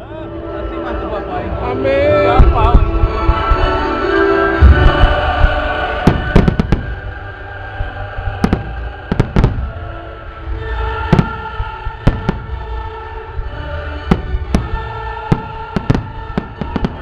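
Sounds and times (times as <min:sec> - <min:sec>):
background music: 0:00.0 - 0:17.0
fireworks bangs: 0:04.6 - 0:10.0, 0:10.8 - 0:17.0.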